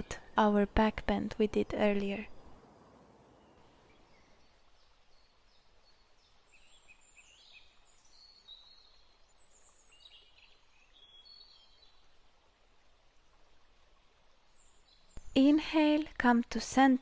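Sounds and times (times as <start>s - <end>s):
soft steady hiss: 0.0s - 17.0s.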